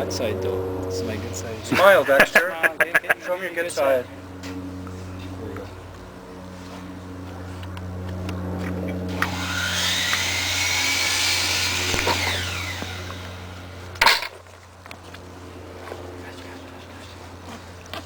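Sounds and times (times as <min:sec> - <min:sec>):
low engine hum: 0:00.0 - 0:02.1, 0:04.0 - 0:18.0
power tool whining: 0:08.6 - 0:14.3.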